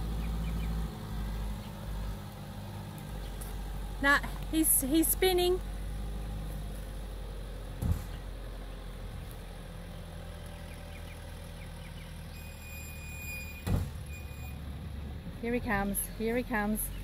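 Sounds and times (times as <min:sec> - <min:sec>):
vehicle engine running: 0:00.0 - 0:17.0
sharp thumps: 0:07.7 - 0:08.3.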